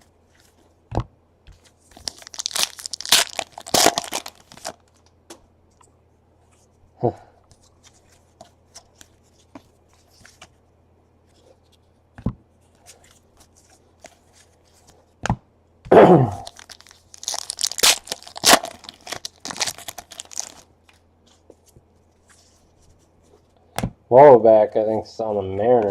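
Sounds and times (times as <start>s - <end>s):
wrapper ripping open: 1.9s - 4.8s, 16.4s - 20.7s
wrapper crinkling: 1.9s - 5.0s, 16.4s - 20.7s.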